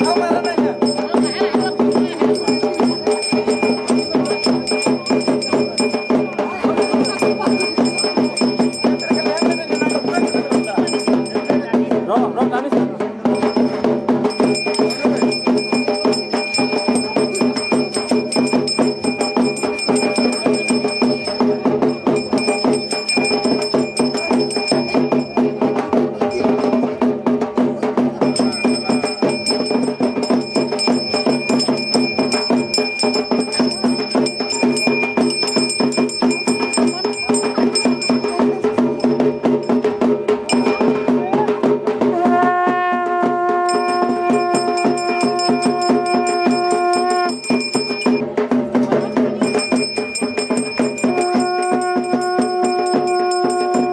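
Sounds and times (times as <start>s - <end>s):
ringing metal tones: 0.0s - 11.9s, 13.2s - 41.4s, 43.3s - 53.9s
fast drumming: 0.0s - 53.9s
held horn-like note: 42.1s - 47.5s, 51.1s - 53.9s.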